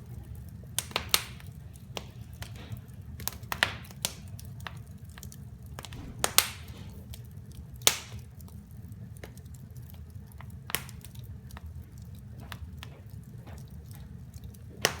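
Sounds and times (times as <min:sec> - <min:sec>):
wood fire crackling: 0:00.0 - 0:15.0
steady low rumble: 0:05.5 - 0:07.8.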